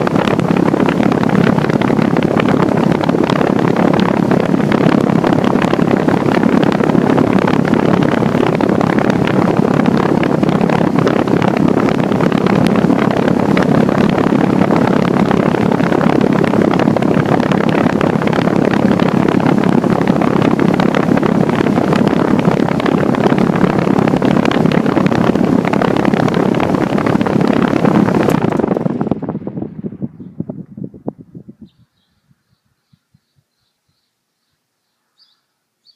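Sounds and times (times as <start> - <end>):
air conditioner fan rushing: 0.0 - 33.5.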